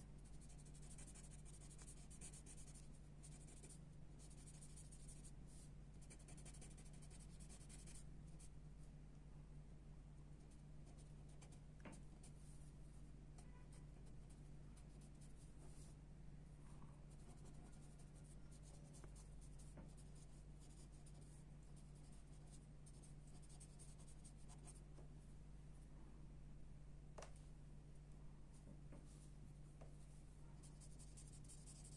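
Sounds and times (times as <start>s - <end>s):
steady low hum: 0.0s - 31.9s
pencil scratching on paper: 0.3s - 8.0s, 17.1s - 21.3s, 22.0s - 24.8s, 30.6s - 31.9s.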